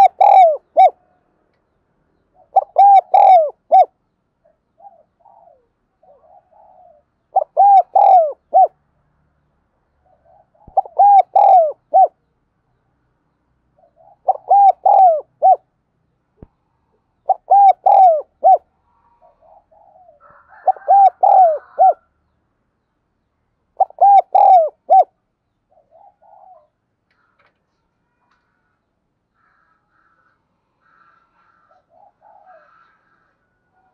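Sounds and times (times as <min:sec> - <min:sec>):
dove cooing: 0:00.0 - 0:01.0, 0:02.4 - 0:08.8, 0:10.0 - 0:12.2, 0:13.8 - 0:15.6, 0:17.2 - 0:22.0, 0:23.8 - 0:26.8, 0:30.9 - 0:33.9.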